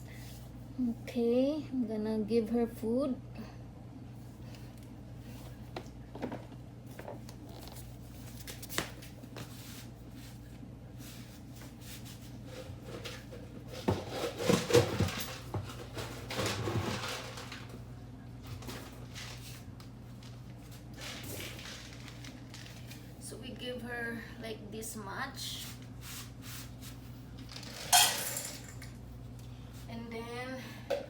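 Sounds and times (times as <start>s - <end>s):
steady low hum: 0.0s - 16.4s
dry kibble clattering: 18.4s - 23.0s.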